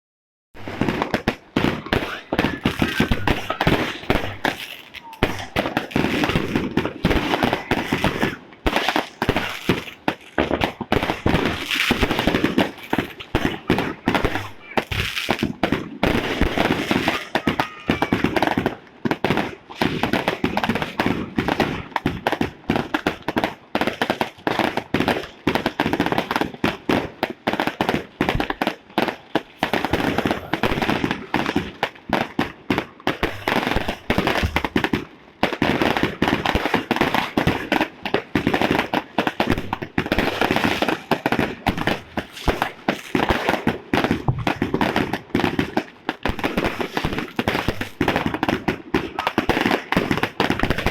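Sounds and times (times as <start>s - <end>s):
fireworks bangs and crackles: 0.6s - 50.9s.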